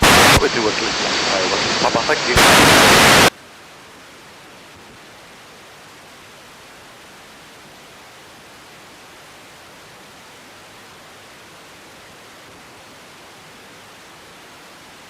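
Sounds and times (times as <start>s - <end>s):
radio static hiss: 0.0s - 3.4s.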